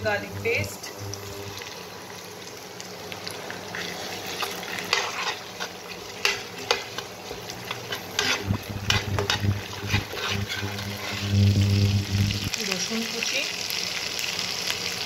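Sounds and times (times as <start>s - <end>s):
food sizzling in hot oil: 0.0s - 15.0s
metal spoon scraping a pan: 3.7s - 11.3s.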